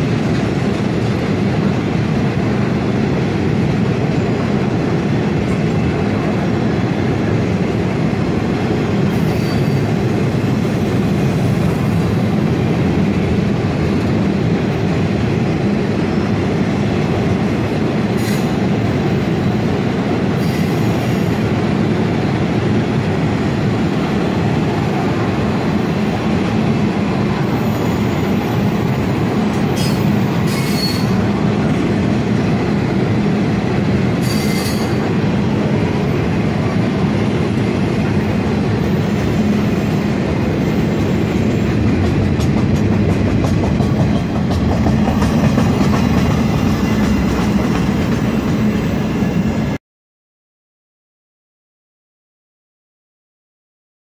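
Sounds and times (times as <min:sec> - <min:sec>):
train wheels rumbling on rails: 0:00.0 - 0:49.8
high wheel squeals: 0:09.2 - 0:09.9, 0:29.7 - 0:31.2, 0:34.2 - 0:35.0.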